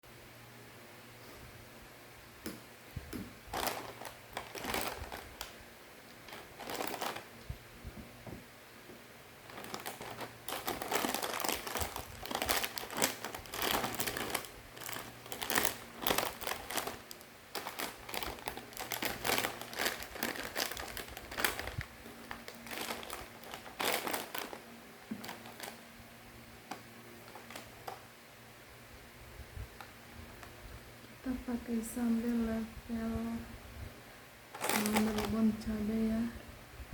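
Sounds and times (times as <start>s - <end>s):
plastic packaging crinkling: 3.4s - 7.5s, 9.4s - 26.0s, 26.6s - 28.0s, 34.5s - 35.7s.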